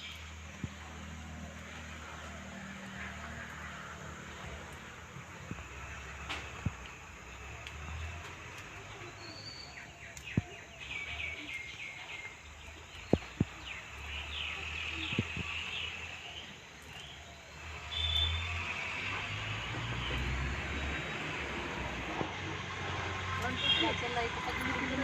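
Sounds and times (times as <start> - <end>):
birds chirping: 5.3 - 22.0, 22.7 - 25.0.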